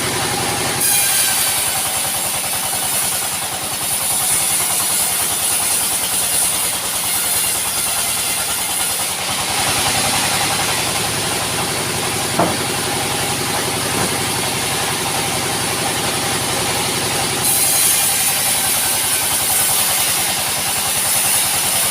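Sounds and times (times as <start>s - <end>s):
sawmill machinery running: 0.0s - 21.9s
sharp knock: 12.3s - 12.8s, 13.9s - 14.3s.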